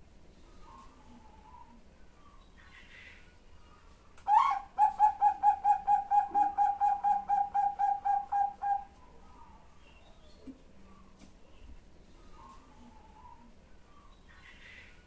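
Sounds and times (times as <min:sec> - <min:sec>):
dove calling clipped notes: 0:04.2 - 0:09.5.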